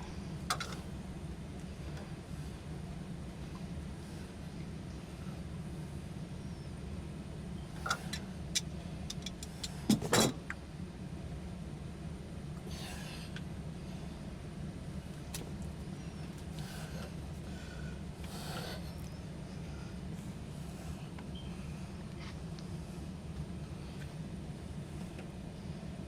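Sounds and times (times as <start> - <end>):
steady low hum: 0.0 - 26.0
hand tools clicking on pipe fittings: 8.6 - 9.8.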